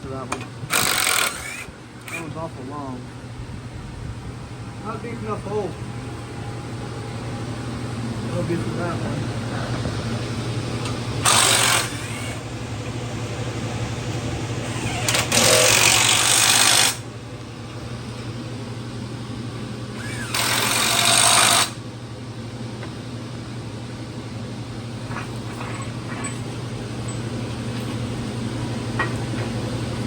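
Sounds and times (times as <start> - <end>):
steady low hum: 0.0 - 30.0
power tool driving bolts: 0.3 - 2.3, 11.2 - 12.4, 14.6 - 17.0, 20.0 - 21.8.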